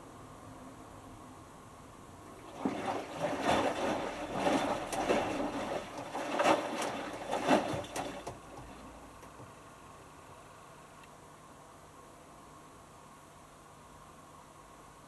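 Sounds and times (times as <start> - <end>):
wet clothes sloshing in water: 2.2 - 8.9
washing machine drum turning: 2.4 - 8.8.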